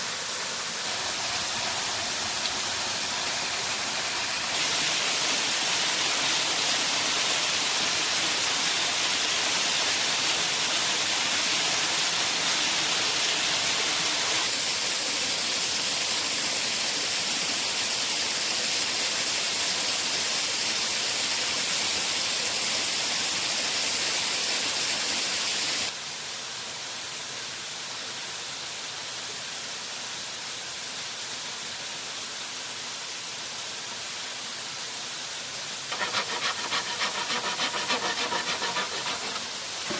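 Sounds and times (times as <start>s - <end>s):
waterfall rushing water: 0.0s - 15.0s.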